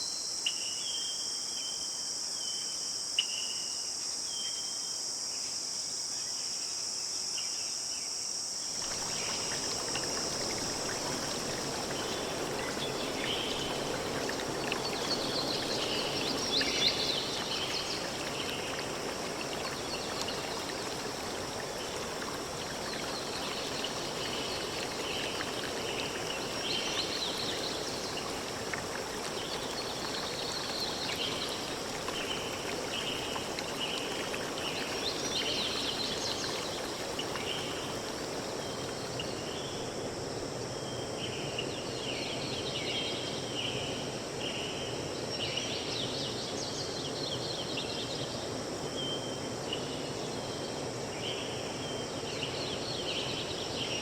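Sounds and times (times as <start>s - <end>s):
stream water flowing: 8.7s - 43.5s, 50.8s - 54.0s.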